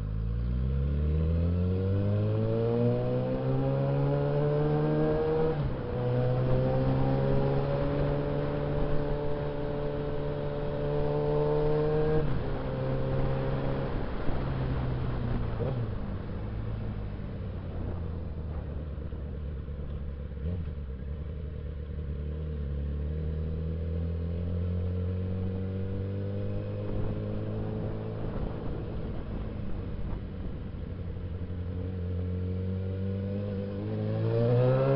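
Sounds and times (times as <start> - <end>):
motorcycle engine running: 15.2 - 23.4.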